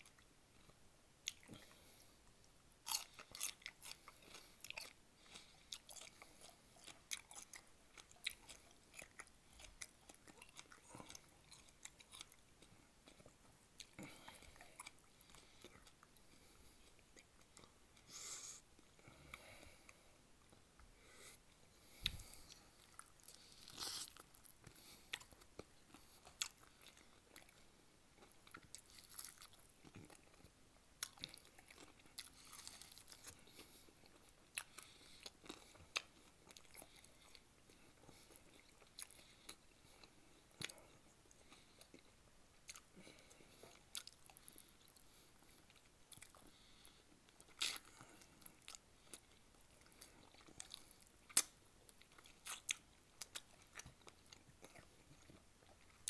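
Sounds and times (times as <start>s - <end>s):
chewing and biting food: 2.8s - 17.8s, 21.9s - 56.0s.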